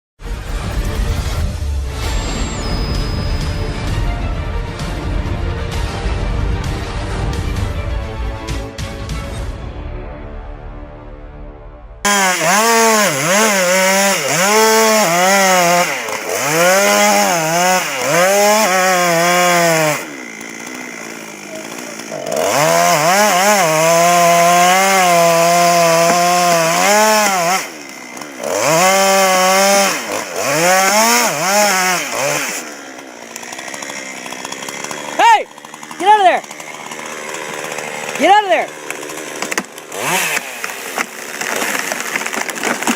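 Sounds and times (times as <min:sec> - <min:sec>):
chainsaw revving: 0:12.1 - 0:42.9.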